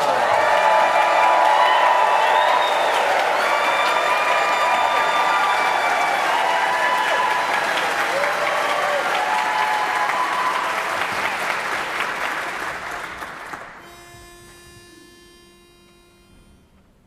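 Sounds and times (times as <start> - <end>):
audience applause: 0.0 - 13.8
people cheering: 0.0 - 13.9
pitch pipe note: 13.8 - 17.0.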